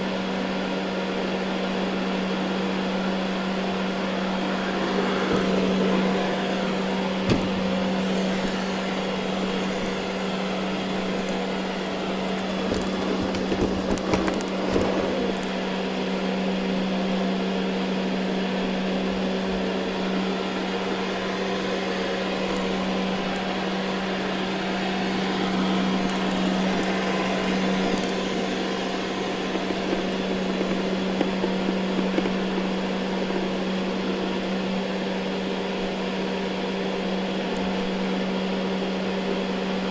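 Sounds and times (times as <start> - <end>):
robot vacuum motor humming: 2.6 - 15.8, 19.5 - 33.4
crackles and ticks: 8.3 - 15.6, 25.6 - 32.9.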